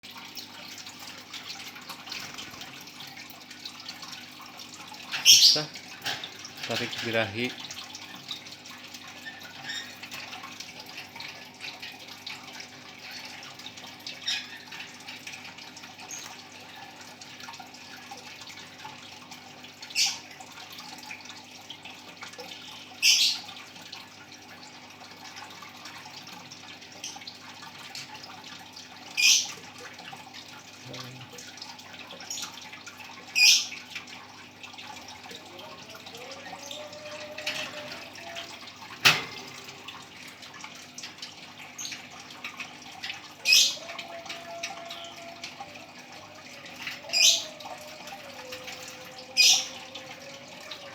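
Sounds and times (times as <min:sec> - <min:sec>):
bird high-pitched calls: 0:05.1 - 0:05.7, 0:22.7 - 0:23.5, 0:29.2 - 0:29.6, 0:43.4 - 0:50.8.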